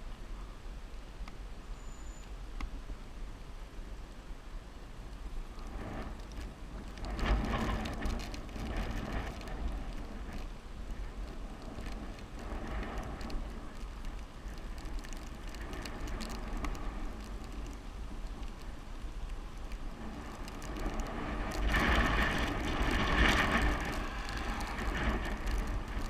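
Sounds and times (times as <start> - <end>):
bicycle tyre and road rumble: 0.0 - 26.0
wind rushing over microphone: 5.2 - 26.0.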